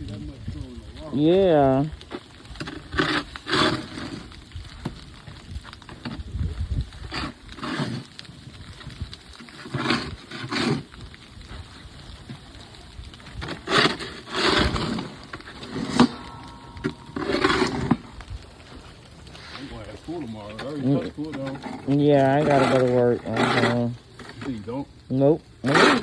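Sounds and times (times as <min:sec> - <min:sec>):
snow shovel scraping: 0:02.6 - 0:04.2, 0:09.6 - 0:10.8, 0:13.4 - 0:16.2, 0:17.2 - 0:18.0.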